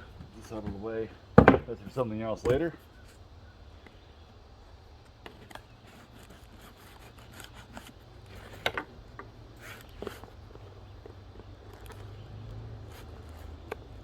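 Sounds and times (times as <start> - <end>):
package rustling and scraping: 5.3 - 9.0, 9.6 - 11.0.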